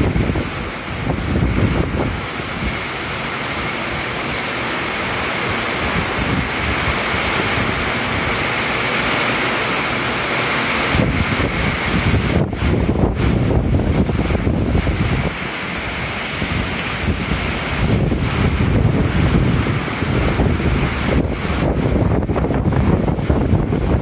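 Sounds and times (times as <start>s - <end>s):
heavy rain pouring: 0.0s - 24.0s
wind buffeting microphone: 0.0s - 24.0s.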